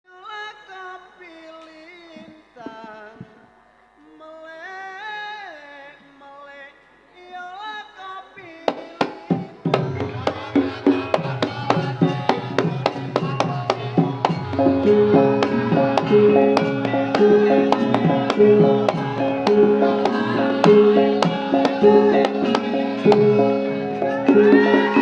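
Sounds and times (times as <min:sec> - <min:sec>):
person singing ornamented melody: 0:00.1 - 0:25.0
band playing quick beat: 0:08.7 - 0:25.0
drums striking: 0:08.7 - 0:25.0.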